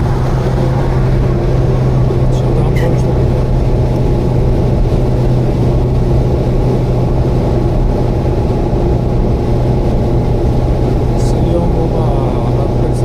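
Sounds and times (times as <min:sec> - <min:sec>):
car engine droning: 0:00.0 - 0:13.0
road noise: 0:00.0 - 0:13.0.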